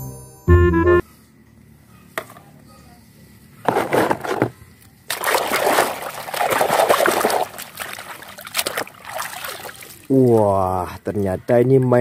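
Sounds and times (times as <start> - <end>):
water sloshing in a basin: 5.1 - 10.6.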